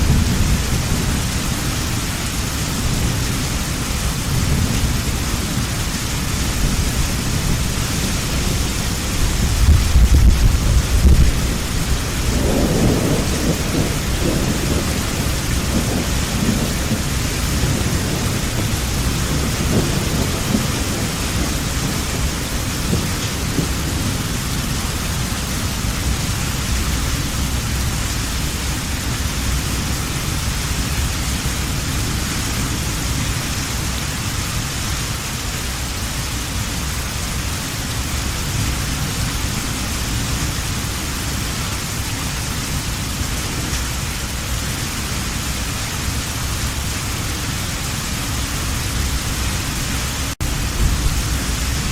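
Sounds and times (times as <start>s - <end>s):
thunder rumbling: 0.0s - 34.4s, 45.4s - 51.9s
heavy rain falling: 0.0s - 51.9s.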